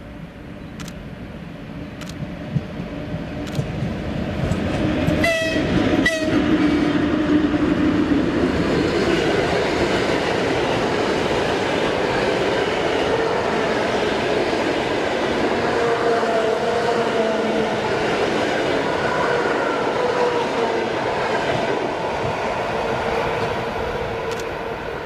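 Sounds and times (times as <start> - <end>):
train rumble and wheel clatter: 0.0 - 25.0
train horn blasts: 5.2 - 6.5.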